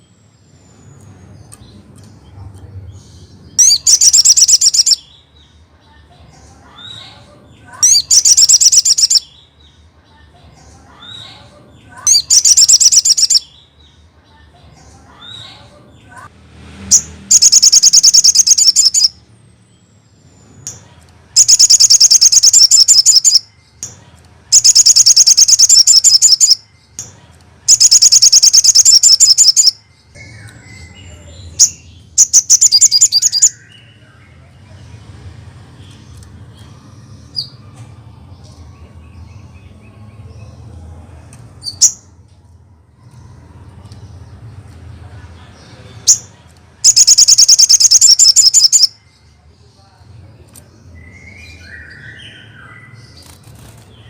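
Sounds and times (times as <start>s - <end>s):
sharp bird chirps: 3.0s - 5.6s, 7.8s - 9.8s, 12.0s - 14.0s, 16.8s - 27.1s, 27.7s - 34.2s, 46.0s - 49.2s
fast high bird trills: 3.6s - 5.1s, 7.8s - 9.3s, 12.1s - 13.5s, 16.9s - 19.1s, 21.4s - 23.5s, 24.5s - 26.6s, 27.7s - 31.0s, 31.6s - 33.6s, 46.8s - 48.9s.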